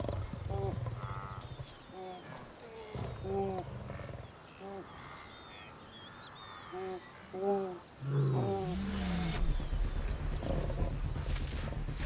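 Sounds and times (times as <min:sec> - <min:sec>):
small birds chirping: 0:00.0 - 0:12.0
low steady rumble: 0:08.2 - 0:12.0.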